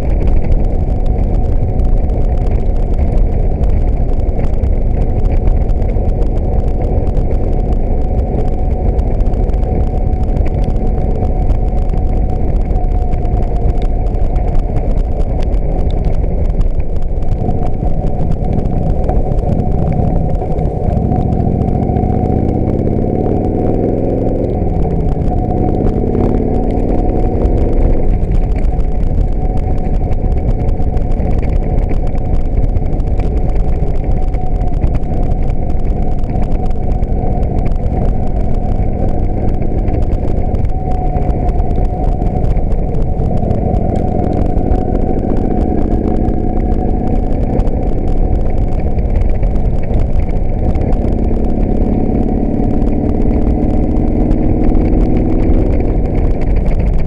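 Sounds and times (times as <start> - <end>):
motorcycle engine running: 0.0 - 57.0
wind rushing: 0.0 - 57.0.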